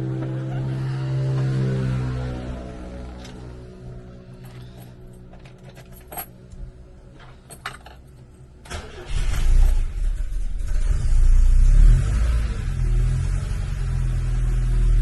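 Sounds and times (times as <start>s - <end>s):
car engine starting and idling: 8.4s - 15.0s.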